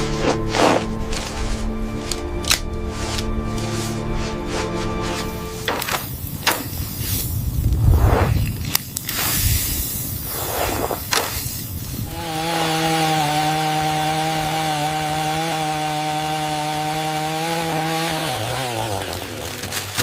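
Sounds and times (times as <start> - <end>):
chainsaw running: 0.0 - 6.8, 12.0 - 20.0
knocks and scraping: 0.0 - 9.2.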